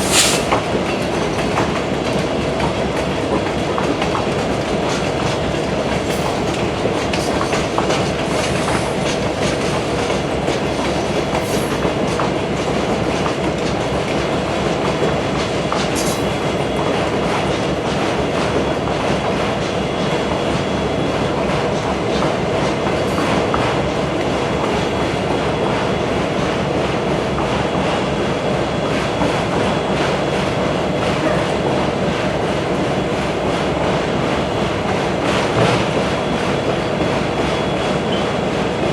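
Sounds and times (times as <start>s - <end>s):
clickety-clack over rail joints: 0.0s - 38.9s
railway wheels rumbling on rail: 0.0s - 38.9s.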